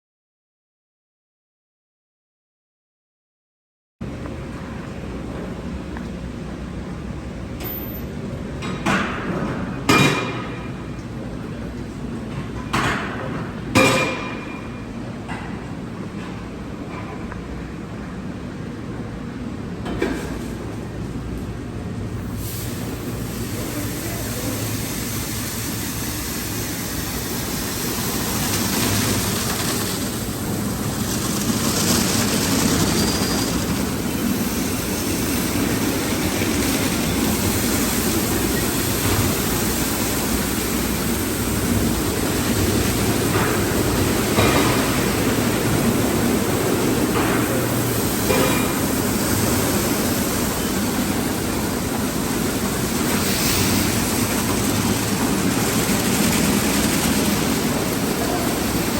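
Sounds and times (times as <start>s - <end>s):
water spray and machinery: 22.3s - 58.9s.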